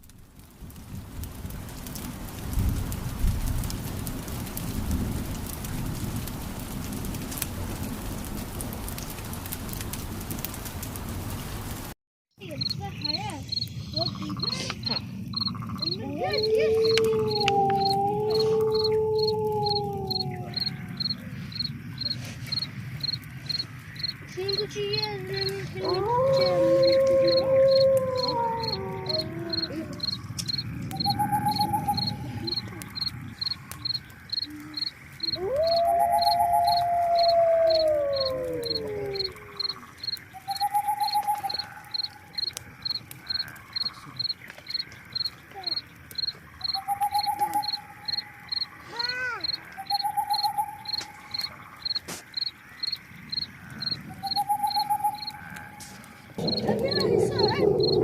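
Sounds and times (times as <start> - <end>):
cricket chirping: 12.4 - 58.0
long drawn-out howl: 15.8 - 44.2, 53.6 - 58.0
falling call: 25.4 - 42.2.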